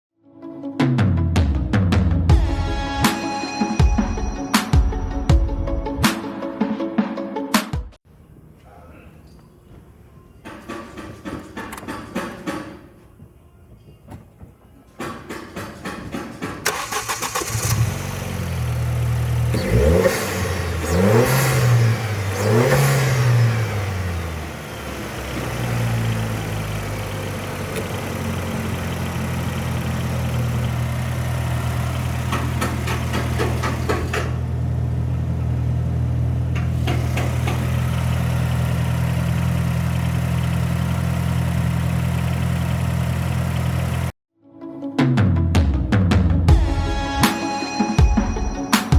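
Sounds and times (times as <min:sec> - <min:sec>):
starter cranking car engine: 0:16.6 - 0:34.4, 0:36.5 - 0:44.1
car engine idling: 0:16.7 - 0:44.1
car engine revving: 0:16.7 - 0:44.1.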